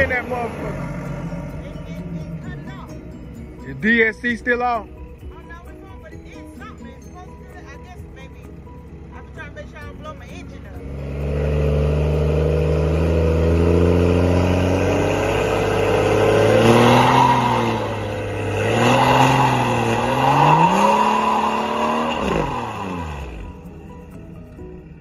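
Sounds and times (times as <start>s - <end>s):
car engine revving: 0.0s - 5.8s, 9.6s - 24.7s
tyres spinning and hissing on asphalt: 10.9s - 23.6s.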